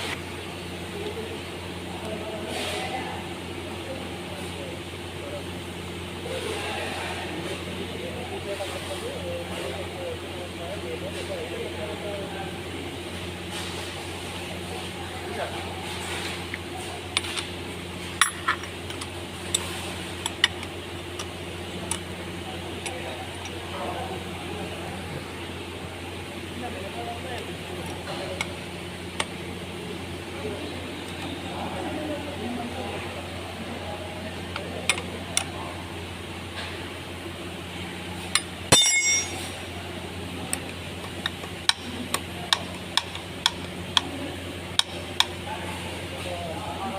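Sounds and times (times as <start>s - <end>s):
steady low hum: 0.0s - 46.9s
metal tools clinking: 38.4s - 39.6s.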